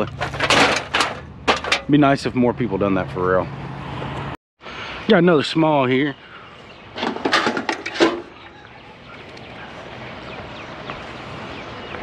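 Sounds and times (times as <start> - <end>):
steady outdoor hiss: 1.4 - 12.0.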